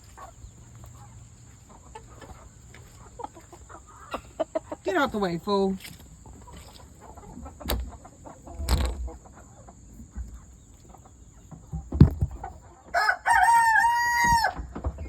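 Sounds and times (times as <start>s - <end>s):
chickens clucking: 0.0s - 15.0s
sharp knocks: 11.7s - 12.6s
rooster crowing: 12.9s - 14.7s.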